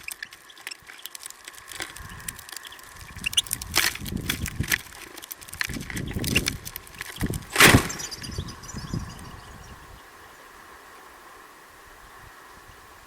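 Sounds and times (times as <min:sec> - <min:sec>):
faint high twittering: 0:00.0 - 0:03.7, 0:06.0 - 0:11.1
birds tapping at feeder: 0:00.0 - 0:09.2
wind on microphone: 0:01.8 - 0:10.1.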